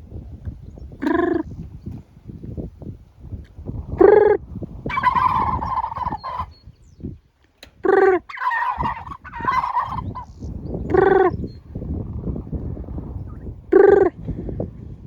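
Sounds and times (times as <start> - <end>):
turkeys gobbling: 1.0 - 1.5, 4.0 - 6.6, 7.8 - 11.4, 13.3 - 14.1.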